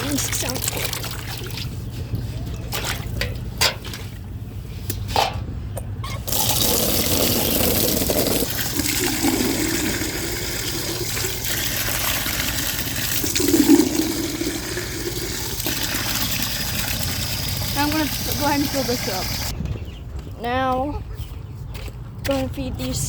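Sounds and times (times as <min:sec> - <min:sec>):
water rushing into a container: 0:00.0 - 0:01.8, 0:06.2 - 0:19.5.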